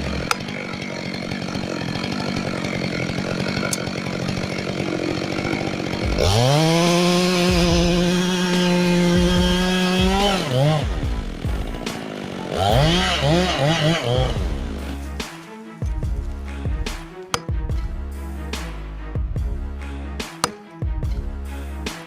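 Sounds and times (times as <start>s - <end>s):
chainsaw revving: 0.0s - 15.4s.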